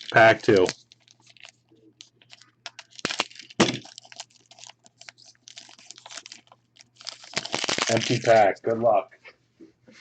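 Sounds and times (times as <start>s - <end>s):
foil pack tearing and crinkling: 0.0s - 1.6s, 2.2s - 8.5s.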